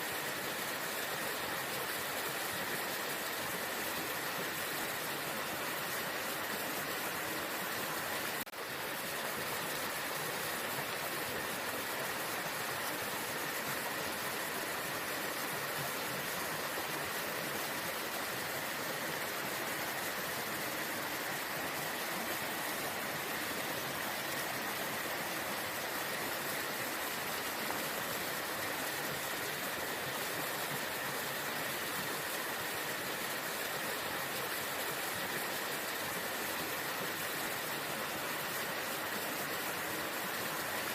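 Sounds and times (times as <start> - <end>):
waterfall roaring: 9.5 - 40.9.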